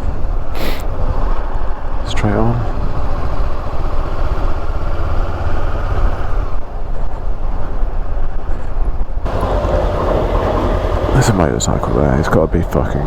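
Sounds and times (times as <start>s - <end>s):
motorcycle engine: 9.3s - 13.0s.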